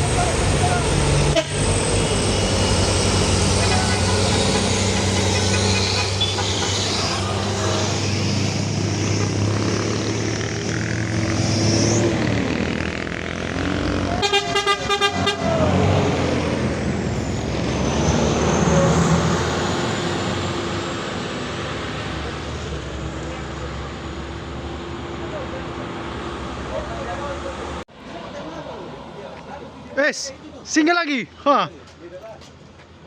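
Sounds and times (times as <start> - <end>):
truck engines droning: 0.0 - 33.0
horn toots: 1.2 - 2.0, 2.8 - 8.3, 13.6 - 16.0.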